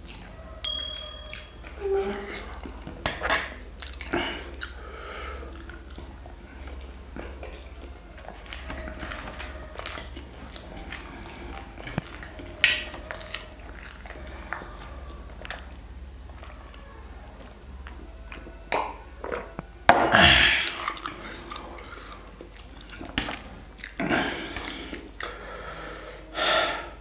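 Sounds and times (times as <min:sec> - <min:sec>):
steady low hum: 0:00.0 - 0:27.0
chewing noodles: 0:01.2 - 0:19.7, 0:20.5 - 0:25.5.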